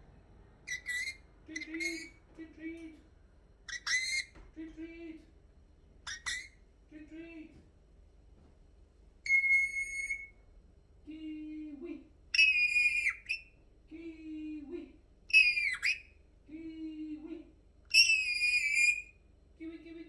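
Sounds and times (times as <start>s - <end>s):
parrot whistled calls: 0.7s - 2.2s, 3.7s - 4.3s, 6.1s - 6.6s, 9.3s - 10.4s, 12.4s - 13.5s, 15.3s - 16.2s, 17.9s - 19.2s.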